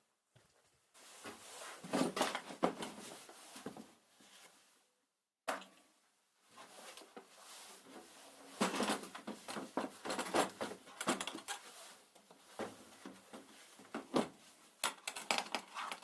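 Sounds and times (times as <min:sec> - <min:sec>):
objects clicking and knocking: 0:08.6 - 0:11.6, 0:14.8 - 0:16.0.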